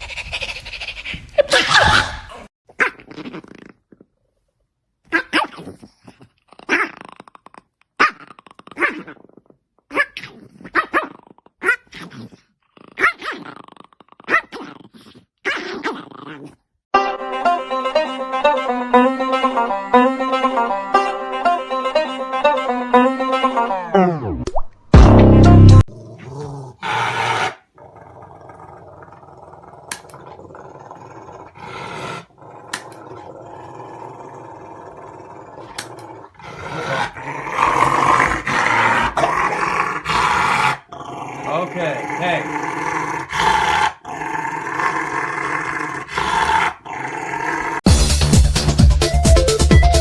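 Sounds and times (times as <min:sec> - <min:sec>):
dog growling: 0:01.8 - 0:04.2, 0:05.1 - 0:16.7, 0:25.8 - 0:47.8
banjo music: 0:17.0 - 0:24.0, 0:25.0 - 0:25.8.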